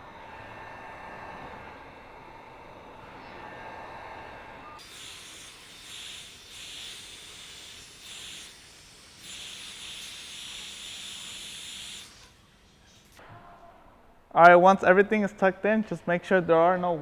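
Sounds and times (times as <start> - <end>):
heat gun blowing hot air: 4.8 - 13.2.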